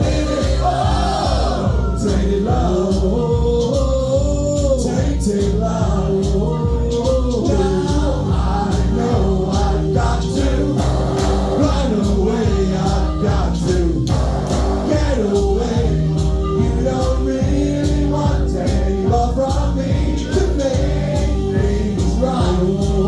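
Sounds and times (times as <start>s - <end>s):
live band playing: 0.0s - 23.0s
steady drum beat: 0.0s - 23.0s
person singing: 11.5s - 14.2s, 14.8s - 23.0s.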